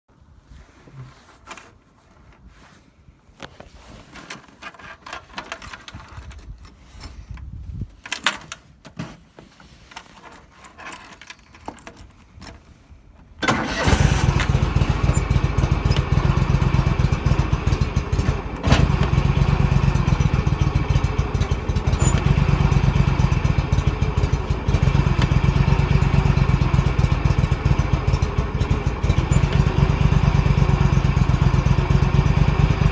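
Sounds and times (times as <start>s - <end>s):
tractor engine running: 13.4s - 32.9s.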